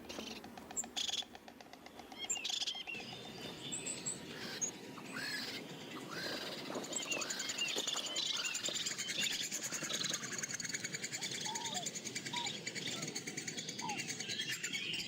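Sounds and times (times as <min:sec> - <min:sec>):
small birds chirping: 0:00.0 - 0:15.0
fast bird trill: 0:09.2 - 0:15.0.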